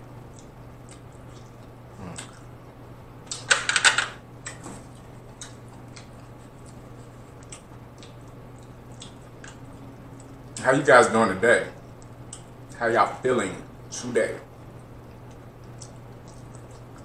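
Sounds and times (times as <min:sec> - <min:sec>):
low steady hum: 0:00.0 - 0:17.0
mouth clicks and smacks: 0:00.3 - 0:02.5, 0:05.3 - 0:10.6, 0:11.8 - 0:12.6, 0:15.1 - 0:17.0.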